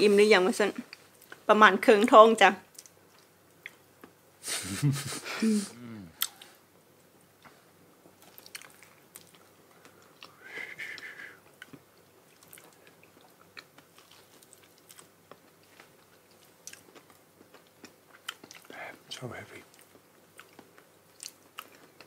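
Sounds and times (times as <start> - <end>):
wet chewing and lip-smacking: 2.7 - 4.2, 8.2 - 10.4, 11.4 - 18.8, 19.7 - 22.0.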